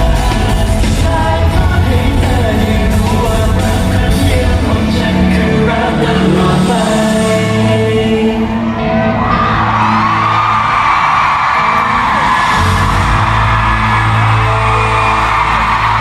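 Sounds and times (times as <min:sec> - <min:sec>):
singer over a band: 0:00.0 - 0:16.0
crowd whooping and yelling: 0:08.2 - 0:16.0.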